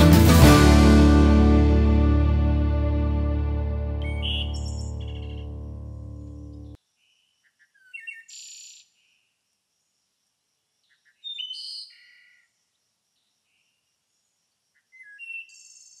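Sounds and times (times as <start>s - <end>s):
birds chirping and whistling: 4.0s - 5.4s.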